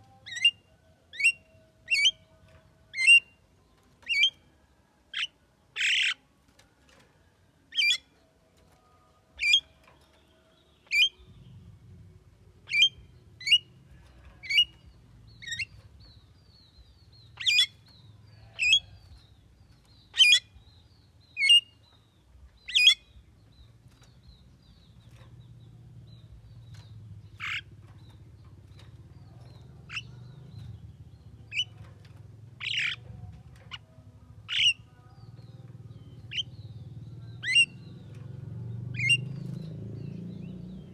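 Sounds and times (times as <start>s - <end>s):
bird squawking calls: 5.2s - 6.2s, 17.4s - 17.8s, 20.2s - 20.5s, 27.4s - 27.7s, 32.6s - 33.0s, 34.5s - 34.9s, 37.4s - 37.8s.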